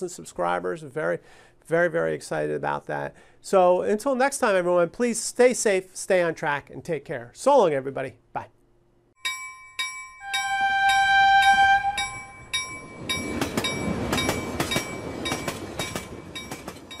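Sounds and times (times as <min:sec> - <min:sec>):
bell ringing: 0:09.2 - 0:17.0
train horn: 0:10.2 - 0:12.4
rolling train rumble: 0:10.2 - 0:17.0.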